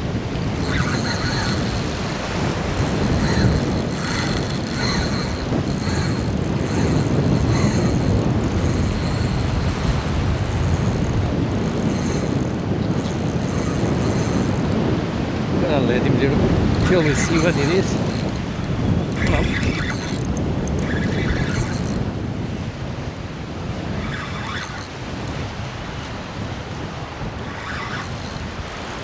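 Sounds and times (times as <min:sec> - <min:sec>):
fishing reel clicking and whirring: 0:00.0 - 0:15.5, 0:16.3 - 0:22.7, 0:23.7 - 0:29.0
wind noise on microphone: 0:00.0 - 0:29.0.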